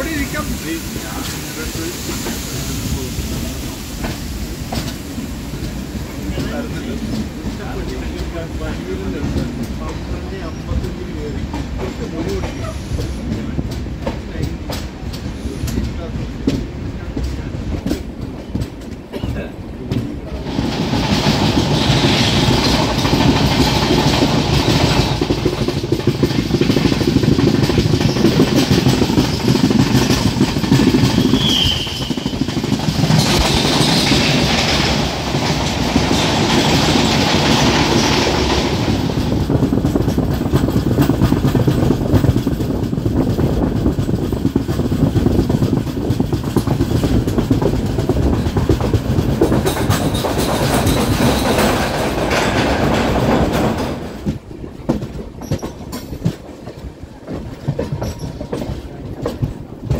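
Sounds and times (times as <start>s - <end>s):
train wheels clattering over rails: 0.0s - 59.9s
high squeal: 31.2s - 32.5s.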